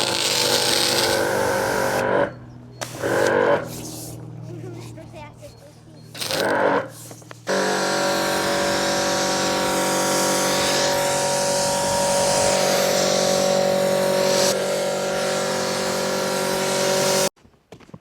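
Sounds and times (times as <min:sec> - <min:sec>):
high-pressure water spray hiss: 0:00.0 - 0:02.0, 0:06.2 - 0:17.3
pump motor hum: 0:00.0 - 0:17.3.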